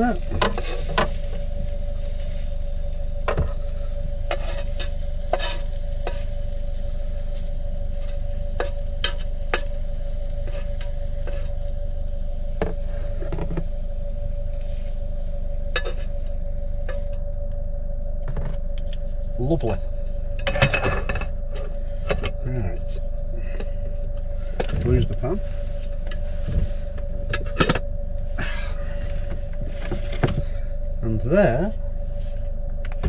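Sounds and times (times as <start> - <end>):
food sizzling in a pan: 0.0 - 11.5
steady hum: 0.0 - 33.0.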